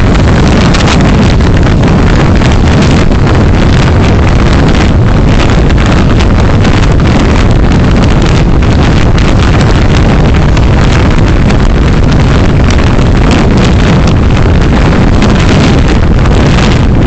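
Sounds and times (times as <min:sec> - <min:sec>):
constant crackling: 0:00.0 - 0:17.0
road and wind noise: 0:00.0 - 0:17.0.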